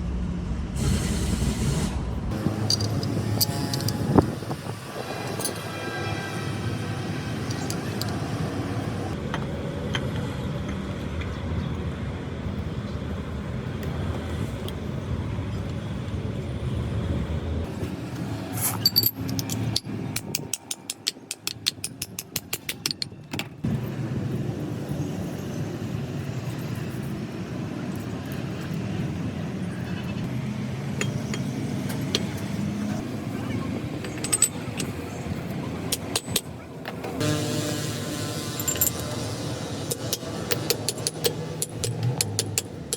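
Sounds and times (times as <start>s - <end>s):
steady low rumble: 0.0s - 5.4s
mechanical work noise: 0.6s - 11.4s, 13.8s - 42.9s.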